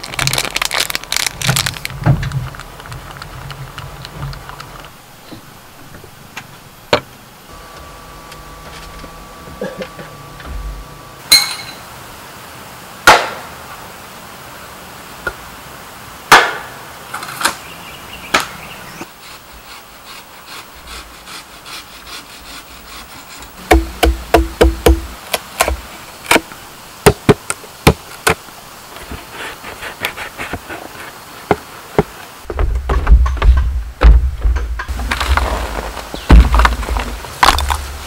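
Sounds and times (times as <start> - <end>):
tool knocking on bamboo: 23.6 - 25.8.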